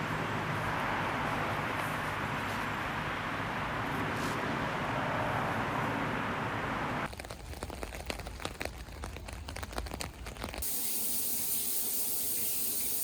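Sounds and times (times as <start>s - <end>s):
raindrops tapping: 7.1s - 10.6s
rain hissing: 8.6s - 13.0s.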